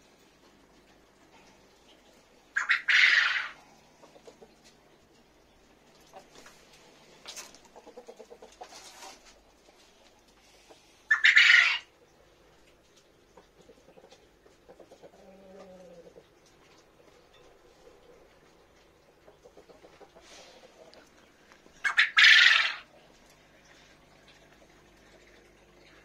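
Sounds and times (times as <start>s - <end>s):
soft rapid bird calls: 1.8s - 6.4s
bird harsh squawks: 2.6s - 3.6s, 11.1s - 11.9s, 21.8s - 22.8s.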